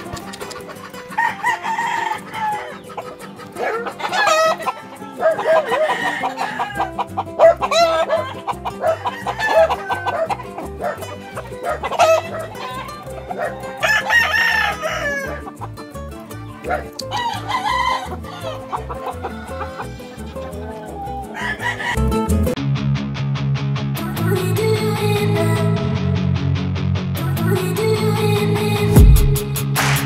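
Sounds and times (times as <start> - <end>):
chickens clucking: 0.0 - 22.0
roosters crowing: 0.1 - 15.8, 16.5 - 22.1
background music with steady beat: 27.2 - 30.0.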